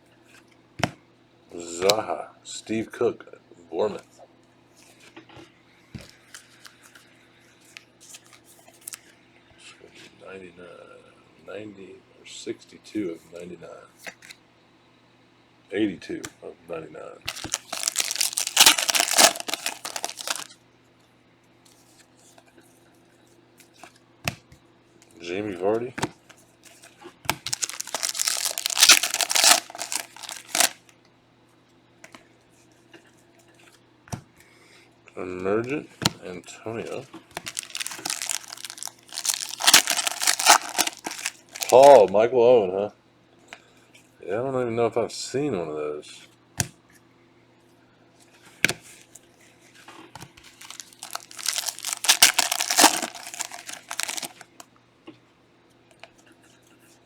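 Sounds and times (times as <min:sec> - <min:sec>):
foil wrapper tearing and crinkling: 0:17.3 - 0:20.5, 0:27.3 - 0:30.8, 0:37.4 - 0:42.1, 0:50.4 - 0:54.6
trading cards rustling: 0:17.3 - 0:20.5, 0:27.3 - 0:30.8, 0:37.4 - 0:42.1, 0:50.4 - 0:54.6.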